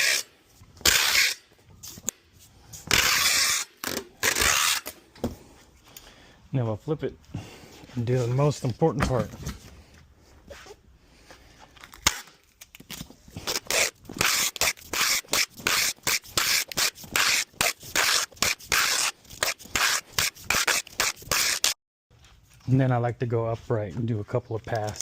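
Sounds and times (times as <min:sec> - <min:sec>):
packing tape rasping on box: 0:00.0 - 0:05.0, 0:11.9 - 0:21.8.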